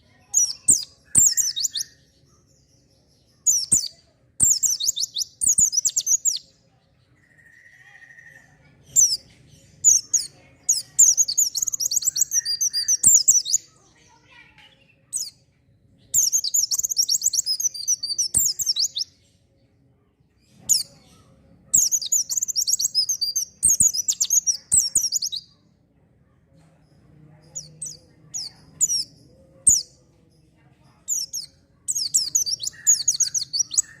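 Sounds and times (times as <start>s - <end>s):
bird twittering: 0.0s - 2.0s, 3.4s - 6.5s, 7.2s - 13.6s, 16.0s - 19.2s, 20.6s - 25.5s, 31.0s - 34.0s
bird chirps: 0.0s - 34.0s.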